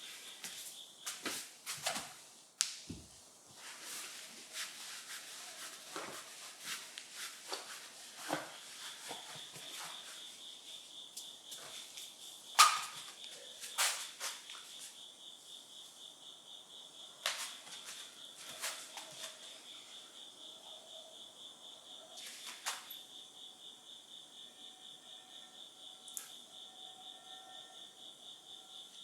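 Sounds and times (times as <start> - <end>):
insects trilling: 0.0 - 2.3, 3.5 - 29.0.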